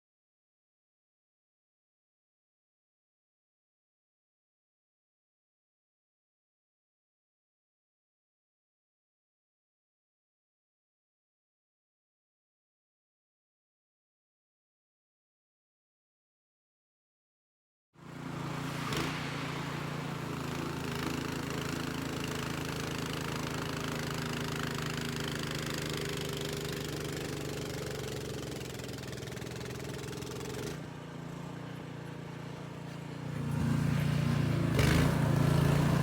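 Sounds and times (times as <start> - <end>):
snowblower engine running: 18.0 - 36.0.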